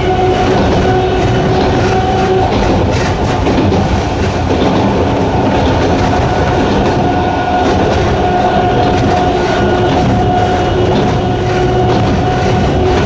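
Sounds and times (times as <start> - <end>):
electric train motor whine: 0.0 - 13.0
train wheels on track: 0.0 - 13.0.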